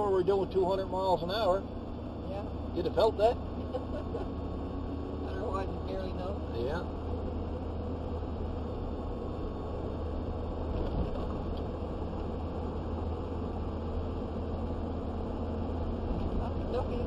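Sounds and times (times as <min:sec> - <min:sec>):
vehicle road noise: 0:00.0 - 0:17.0.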